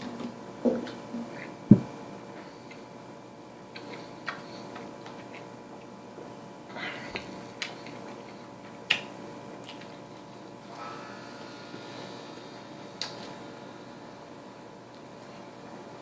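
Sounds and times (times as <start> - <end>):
faint steady hum: 0.0 - 16.0
wet mouth clicks: 3.7 - 5.5, 8.9 - 9.9, 13.0 - 13.2
person chewing burger: 3.7 - 6.0, 6.9 - 10.6.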